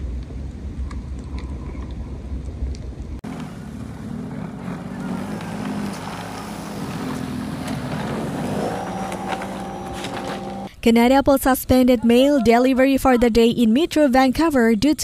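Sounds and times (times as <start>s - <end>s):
vehicle engine rumble: 0.0s - 10.7s.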